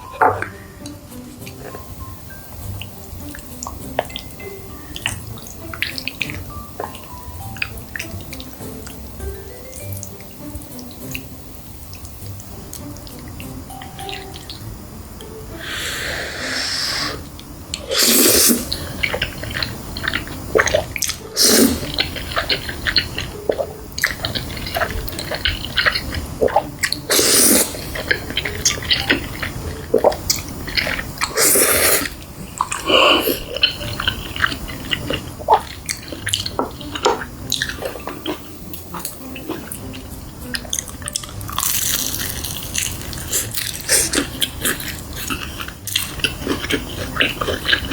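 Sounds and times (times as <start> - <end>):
chewing with wet clicks: 0.2 - 15.3, 18.7 - 31.4, 32.0 - 47.9
crunchy bites of fried chicken: 40.5 - 47.9.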